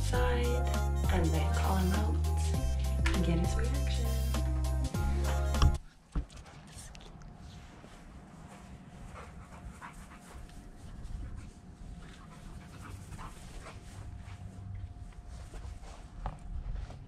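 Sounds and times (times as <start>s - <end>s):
dog panting: 8.4s - 14.3s.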